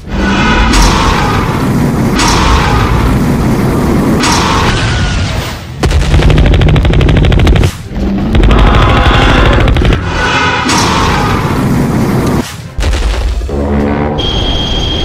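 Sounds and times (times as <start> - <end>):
rapid minigun fire: 5.8 - 13.4.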